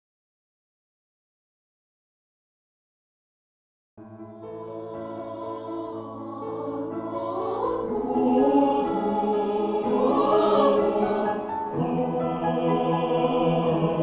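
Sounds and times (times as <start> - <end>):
choir singing chords: 4.0 - 14.0.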